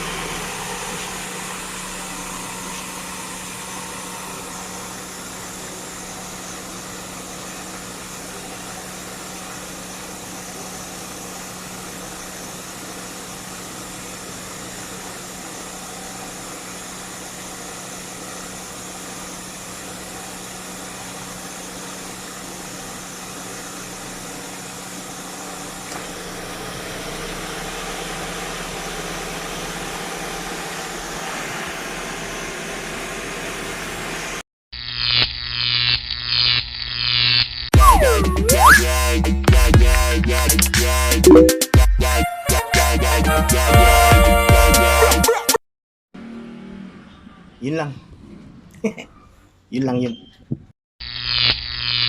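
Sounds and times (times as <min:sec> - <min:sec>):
car engine idling: 0:00.0 - 0:34.4.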